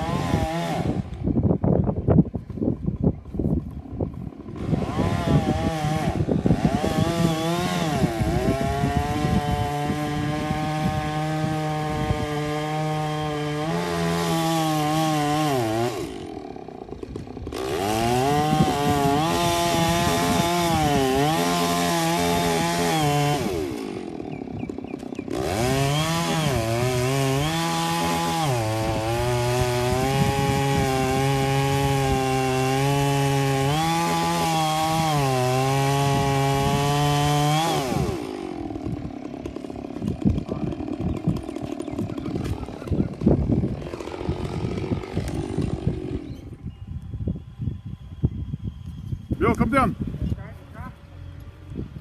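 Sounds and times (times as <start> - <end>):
chainsaw cutting wood: 0.0 - 47.3.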